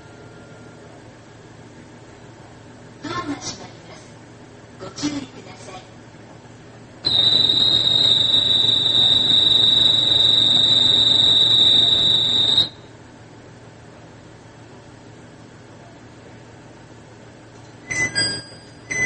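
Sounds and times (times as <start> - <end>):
high-pitched electronic tone: 7.1 - 12.8.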